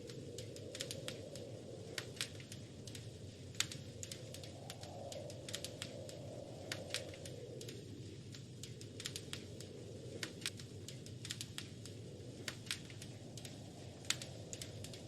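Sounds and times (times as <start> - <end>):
low rush of flames: 0.0 - 15.0
wood fire crackling and popping: 0.0 - 15.0.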